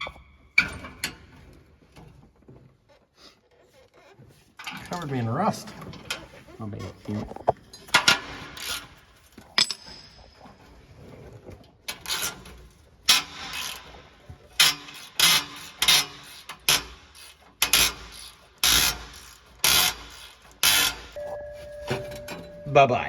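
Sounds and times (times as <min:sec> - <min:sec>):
scraping on rusty metal: 0:11.9 - 0:21.2.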